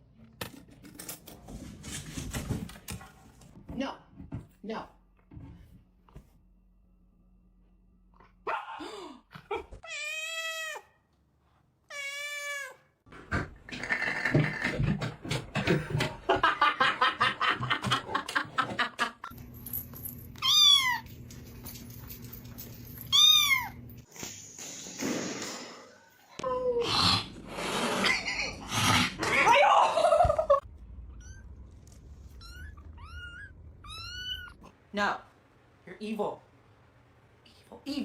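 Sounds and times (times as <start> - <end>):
cats meowing: 32.2 - 34.7.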